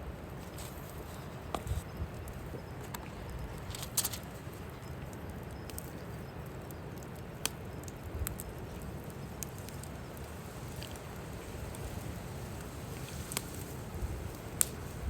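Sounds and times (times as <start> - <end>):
fire crackling and popping: 0.2 - 15.0
wind rumble on microphone: 9.6 - 15.0.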